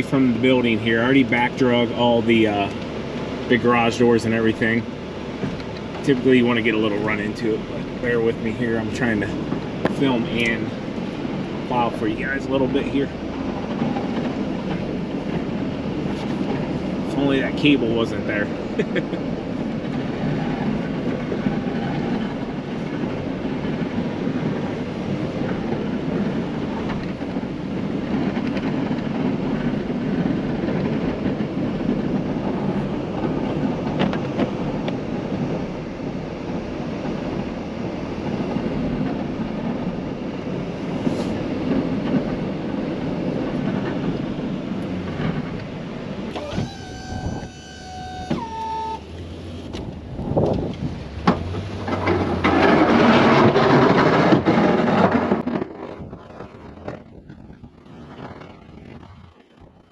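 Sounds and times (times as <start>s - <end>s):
snow plow engine rumble: 0.0s - 59.9s
short steady tones: 46.3s - 49.3s
scattered crackle: 51.8s - 59.9s.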